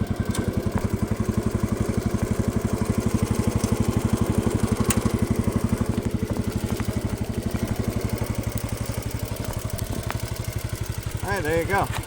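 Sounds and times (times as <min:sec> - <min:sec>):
garden tractor engine running: 0:00.0 - 0:12.0.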